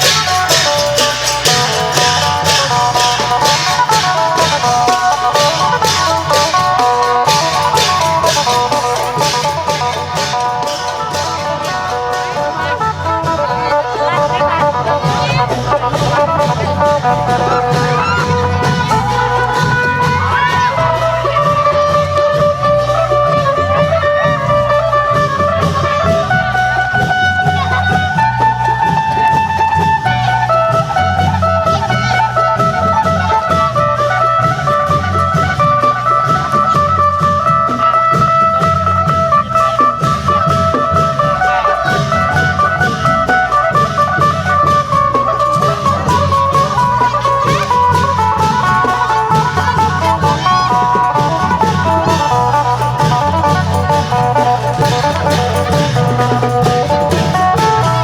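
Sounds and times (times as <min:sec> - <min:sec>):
long drums beat: 0:00.0 - 0:58.0
sharp percussion strokes: 0:00.0 - 0:58.0
plucked lute melody: 0:43.6 - 0:58.0.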